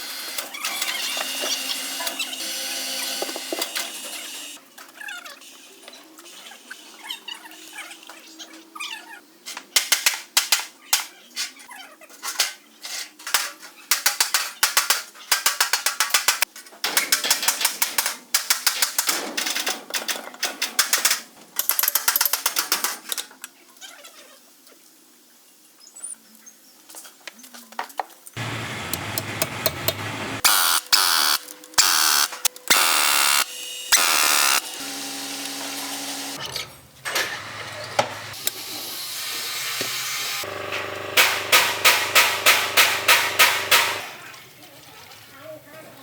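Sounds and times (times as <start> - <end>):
hand tool clicking and rattling: 13.3 - 23.2.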